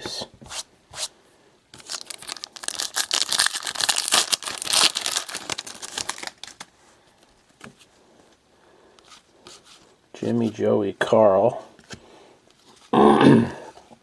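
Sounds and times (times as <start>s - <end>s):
foil wrapper tearing and crinkling: 1.8s - 6.7s.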